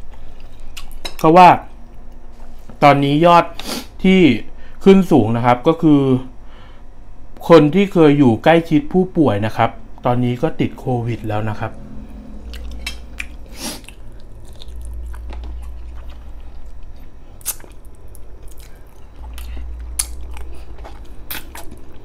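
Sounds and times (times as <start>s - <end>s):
low hum: 8.2s - 22.0s
chewing and wet mouth smacks: 12.4s - 22.0s
man sucking fingers: 12.5s - 14.9s.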